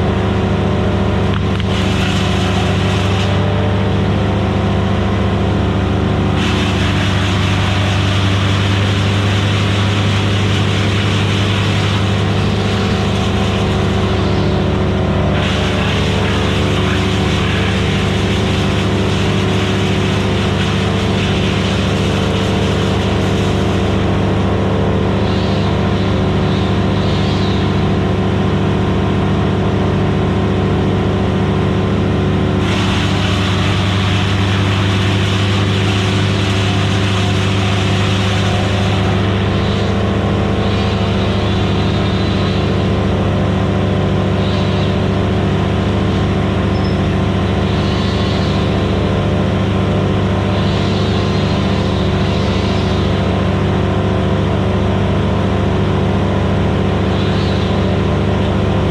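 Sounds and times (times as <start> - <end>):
wood chipper engine drone: 0.0 - 58.9.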